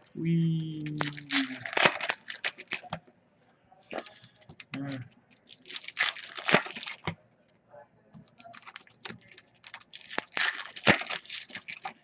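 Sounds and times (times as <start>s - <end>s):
card packs crinkling and rustling: 0.6s - 3.0s, 3.9s - 7.2s, 8.2s - 12.0s
cards snapping: 8.3s - 12.0s.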